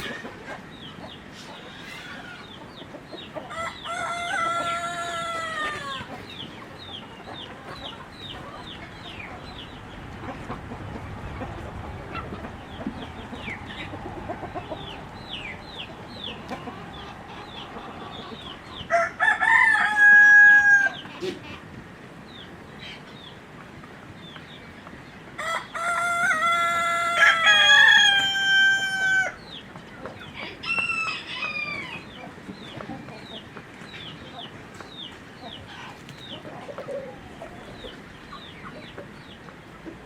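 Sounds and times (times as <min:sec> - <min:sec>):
chickens clucking and chirping: 0:00.0 - 0:40.0
rooster crowing: 0:03.5 - 0:06.1, 0:18.9 - 0:21.0, 0:25.4 - 0:29.4, 0:30.4 - 0:32.0.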